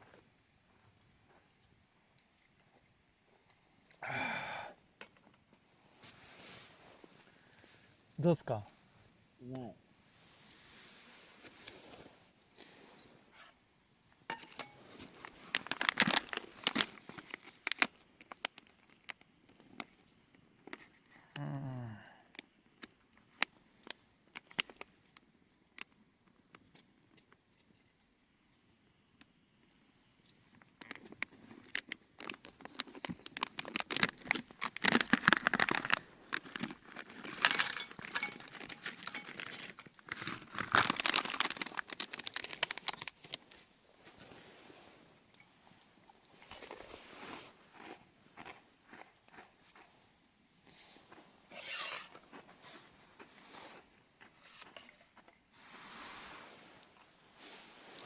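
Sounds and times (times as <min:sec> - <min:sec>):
material crinkling and rustling: 0:10.0 - 0:13.6, 0:14.3 - 0:20.0, 0:30.7 - 0:58.0.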